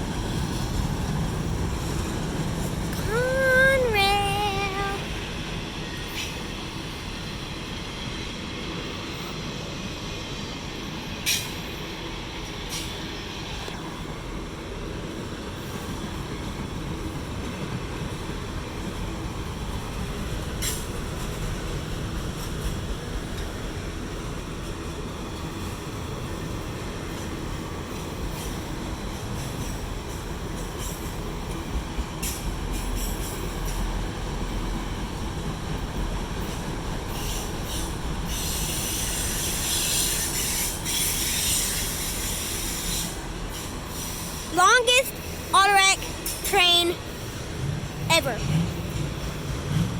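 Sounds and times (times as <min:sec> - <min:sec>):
freight cars rumbling on rail: 0:00.0 - 0:03.1, 0:45.2 - 0:49.9.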